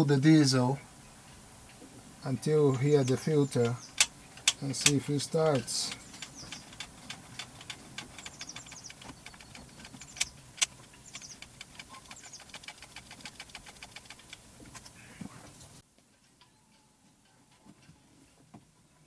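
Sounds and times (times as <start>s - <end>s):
pump lever squeaks: 2.7s - 15.2s
fuel pump lever clicking: 3.0s - 14.9s.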